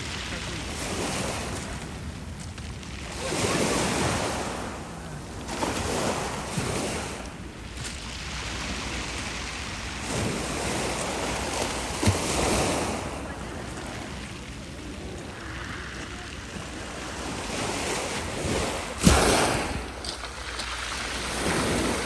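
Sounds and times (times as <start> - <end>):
waves washing onto beach: 0.0 - 22.0
wind buffeting microphone: 0.0 - 22.0.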